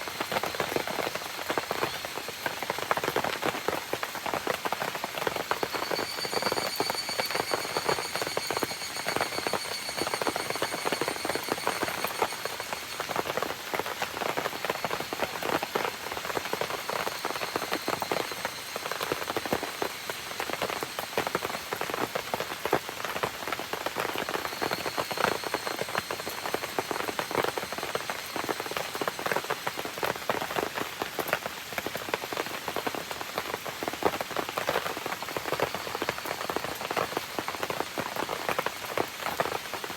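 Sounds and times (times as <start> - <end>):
campfire crackling: 0.0 - 30.4
rain pattering: 0.0 - 39.9
faint high steady tone: 4.5 - 30.5.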